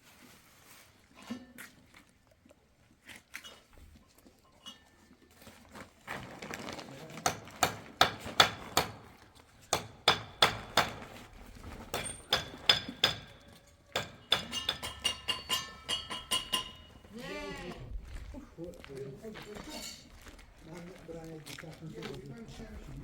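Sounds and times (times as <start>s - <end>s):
sharp knocks: 9.7s - 11.2s
metallic clinks: 13.6s - 17.1s.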